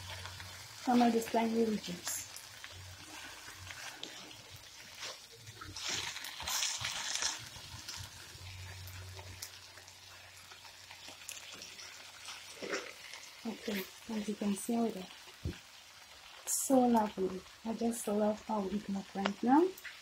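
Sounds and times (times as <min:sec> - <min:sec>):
food sizzling in a pan: 0:00.0 - 0:20.0
spatula stirring in a pan: 0:02.5 - 0:14.1.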